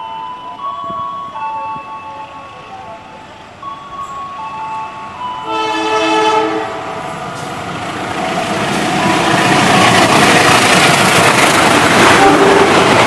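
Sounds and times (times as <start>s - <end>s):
train rumble and rail noise: 0.0s - 13.0s
diesel locomotive horn: 5.4s - 7.1s, 12.1s - 13.0s.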